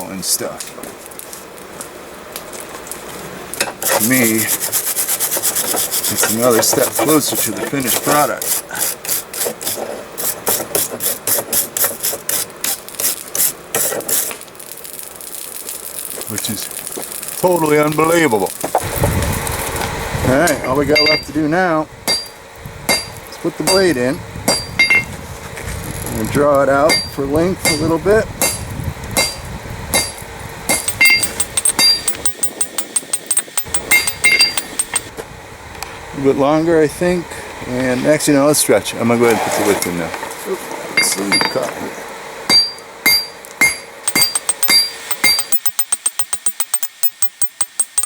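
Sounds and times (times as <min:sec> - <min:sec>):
wire brush scraping steel: 0:03.8 - 0:19.9, 0:30.0 - 0:35.1, 0:42.6 - 0:48.0
hammer striking metal on anvil: 0:21.0 - 0:21.3, 0:22.1 - 0:25.1, 0:26.9 - 0:35.1, 0:41.0 - 0:41.7, 0:42.5 - 0:48.0.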